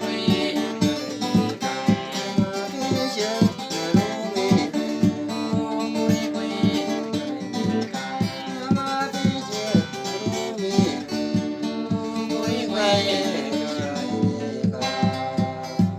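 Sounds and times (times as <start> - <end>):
guitar strummed: 0.0 - 15.9.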